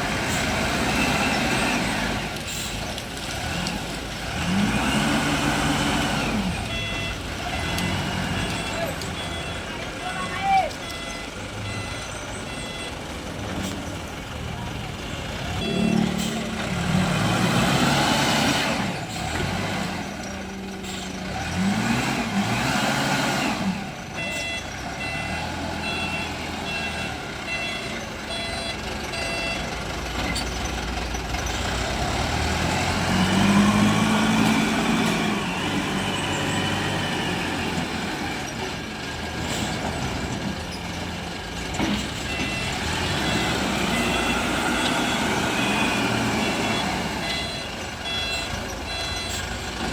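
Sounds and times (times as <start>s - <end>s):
wheel loader diesel engine revving: 0.0s - 10.1s, 10.8s - 49.9s
reversing alarm beeps: 6.6s - 13.1s, 15.5s - 16.6s, 24.1s - 29.7s, 42.2s - 49.6s.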